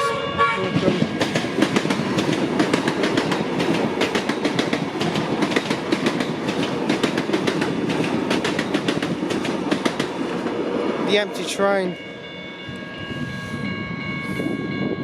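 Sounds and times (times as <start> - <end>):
train rumble: 0.0 - 15.0
train wheels clattering: 0.9 - 10.6.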